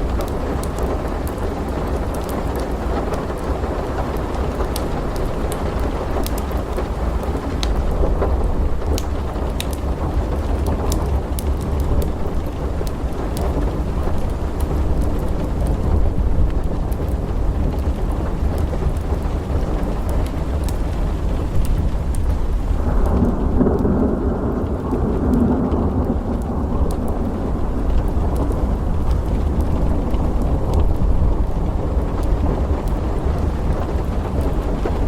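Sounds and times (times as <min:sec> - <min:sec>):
deep storm rumble: 0:00.0 - 0:35.0
steady rain: 0:00.0 - 0:35.0
wood fire crackling: 0:00.0 - 0:35.0
thunder rolling: 0:21.4 - 0:35.0.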